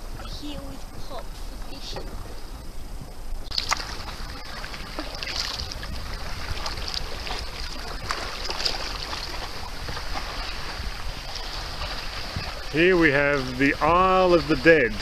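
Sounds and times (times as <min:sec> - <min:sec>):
water splashing along kayak hull: 0:00.0 - 0:15.0
wind noise on microphone: 0:00.0 - 0:15.0.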